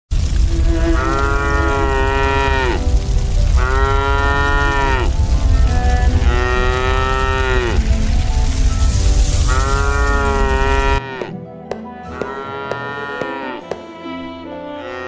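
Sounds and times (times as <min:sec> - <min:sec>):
steady low rumble: 0:00.1 - 0:10.5
cow mooing: 0:00.6 - 0:02.8, 0:03.6 - 0:05.1, 0:05.7 - 0:07.9, 0:09.5 - 0:11.4, 0:12.0 - 0:13.7.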